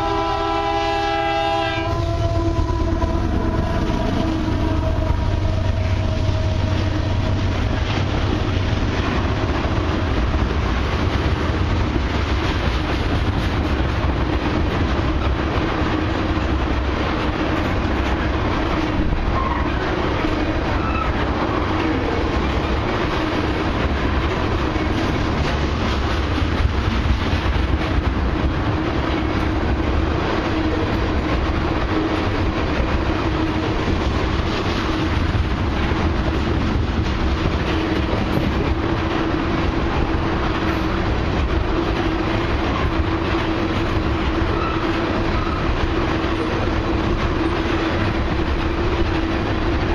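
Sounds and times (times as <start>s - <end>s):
locomotive horn: 0.0s - 7.4s, 44.4s - 45.7s
train wheels clacking over rail joints: 0.0s - 49.9s.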